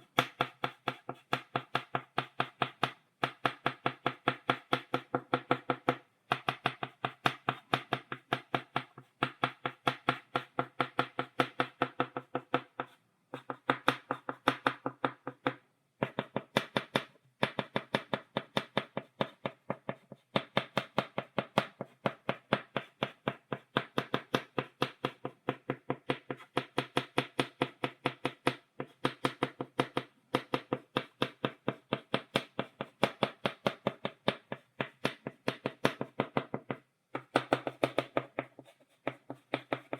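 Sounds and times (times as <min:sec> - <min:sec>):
chalk tapping on blackboard: 0:00.0 - 0:39.9.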